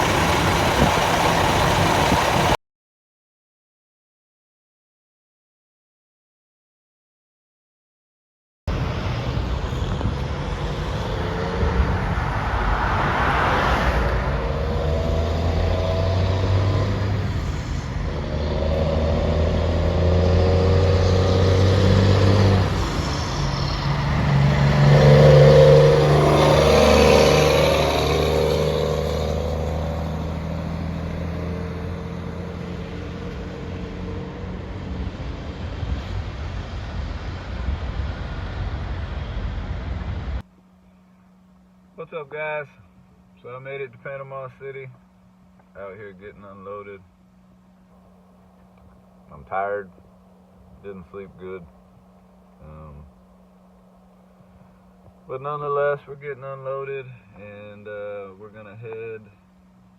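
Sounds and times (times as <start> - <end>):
truck diesel engine running: 0.0 - 2.6, 8.7 - 40.0
vehicles passing by: 0.0 - 2.6, 8.7 - 59.9.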